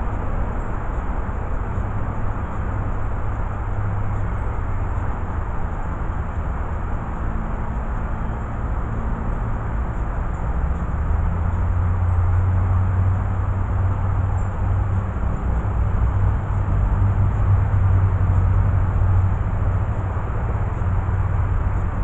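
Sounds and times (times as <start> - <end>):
constant hiss: 0.0 - 22.0
low mechanical rumble: 0.0 - 22.0.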